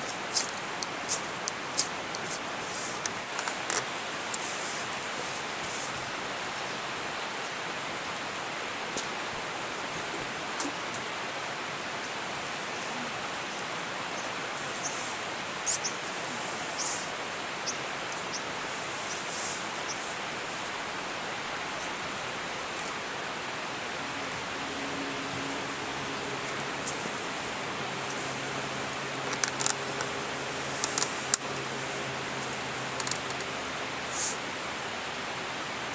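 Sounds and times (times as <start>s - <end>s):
river water flowing: 0.0s - 35.9s
faint high crackles: 25.3s - 34.4s.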